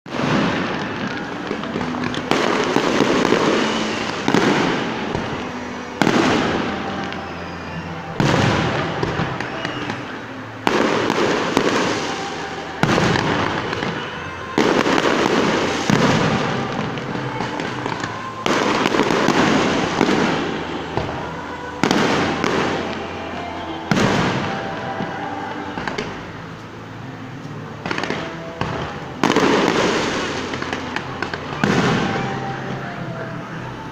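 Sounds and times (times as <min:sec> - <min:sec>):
firework bangs: 0:00.1 - 0:26.7, 0:27.4 - 0:33.9
firework crackle: 0:00.1 - 0:33.9.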